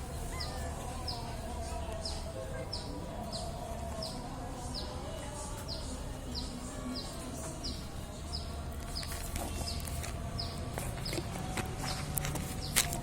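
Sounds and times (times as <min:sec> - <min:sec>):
bird chirping: 0:00.0 - 0:05.0.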